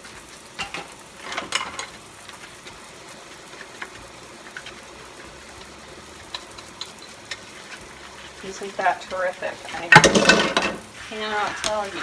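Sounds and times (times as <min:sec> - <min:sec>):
scrub brush scrubbing sink: 0:01.2 - 0:12.0
tap running into sink: 0:09.9 - 0:10.8.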